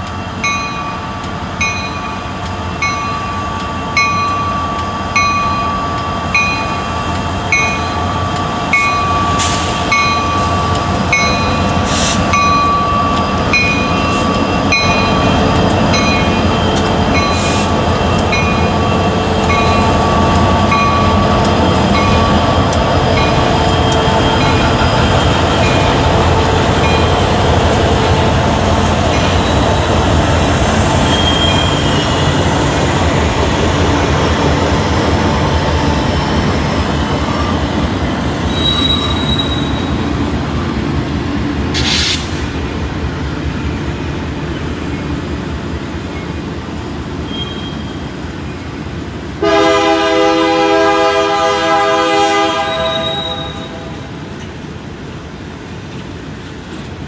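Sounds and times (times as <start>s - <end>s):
diesel locomotive rumble: 0.0s - 57.0s
wheel squeals: 31.0s - 32.3s, 38.4s - 40.0s, 47.3s - 48.0s
short hiss: 41.8s - 42.4s
train air horn: 49.4s - 54.0s.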